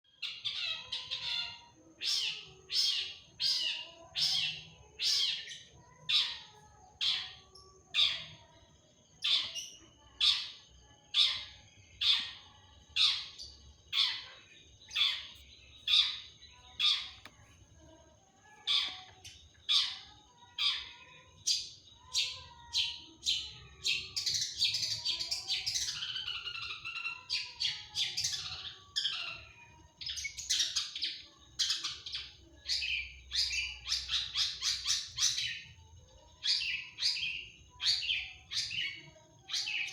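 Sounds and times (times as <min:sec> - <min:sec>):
bird singing sharp repeated calls: 0:11.2 - 0:17.4, 0:18.5 - 0:35.7, 0:36.4 - 0:39.9.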